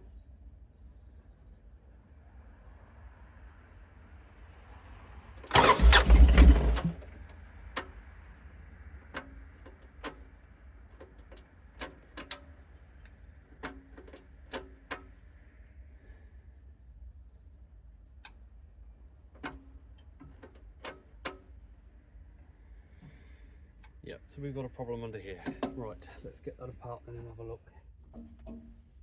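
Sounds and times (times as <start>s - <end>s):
starter motor cranking diesel engine: 5.4s - 7.3s
light clicks and knocks: 25.4s - 26.2s.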